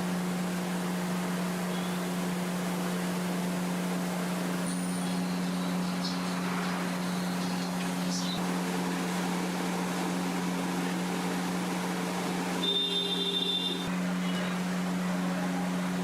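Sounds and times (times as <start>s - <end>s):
mechanical hum: 0.0s - 16.0s
high steady tone: 12.6s - 13.9s.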